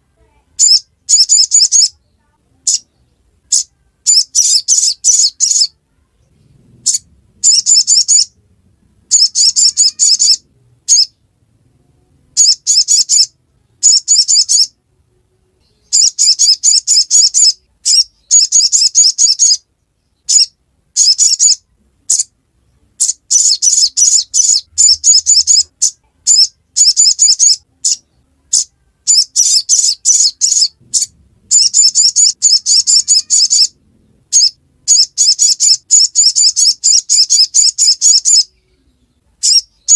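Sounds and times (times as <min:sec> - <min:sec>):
bird chattering call: 0:06.8 - 0:08.4, 0:09.1 - 0:11.1, 0:23.0 - 0:38.6.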